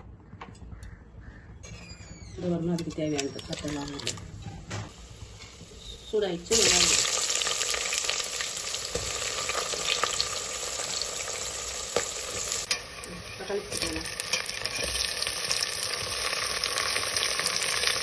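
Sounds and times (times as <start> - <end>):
onions sizzling in hot oil: 4.9 - 18.0.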